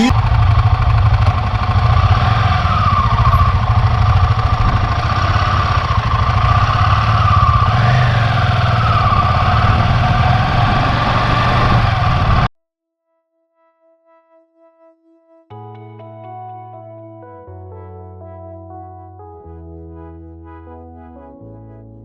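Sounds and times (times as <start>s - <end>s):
motorcycle engine running: 0.0s - 12.5s.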